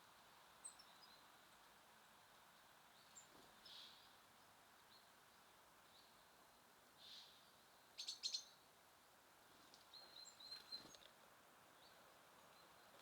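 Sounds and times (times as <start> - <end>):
low outdoor hiss: 0.0 - 13.0
faint songbird chirps: 0.6 - 4.2, 7.0 - 8.6, 9.7 - 11.1.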